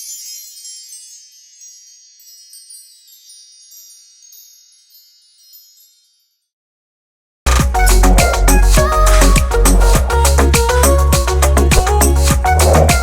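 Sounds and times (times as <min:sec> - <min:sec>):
wind chimes tinkling: 0:00.0 - 0:06.6.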